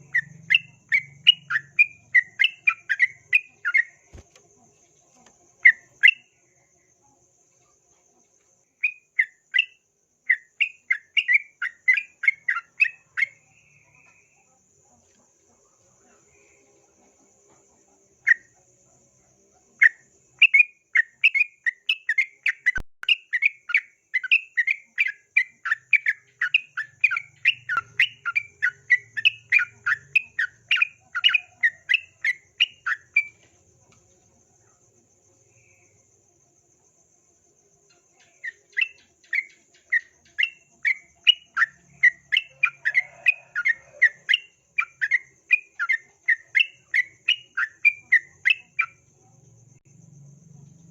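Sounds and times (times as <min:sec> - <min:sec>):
bird calling in whistled notes: 0:00.0 - 0:04.2, 0:19.8 - 0:33.4.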